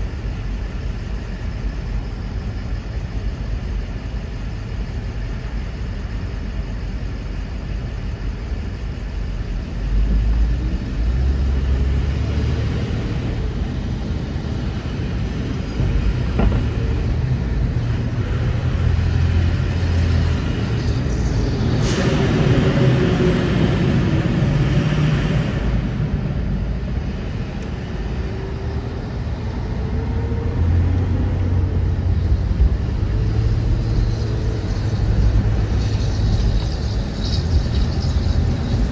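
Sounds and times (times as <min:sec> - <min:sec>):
trucks and buses driving past: 0:00.0 - 0:38.9
loud burst of hissing: 0:20.5 - 0:22.8.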